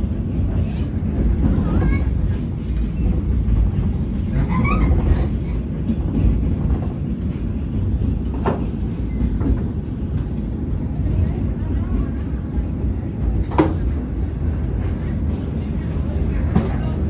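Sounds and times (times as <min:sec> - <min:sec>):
train rumbling along track: 0:00.0 - 0:17.0.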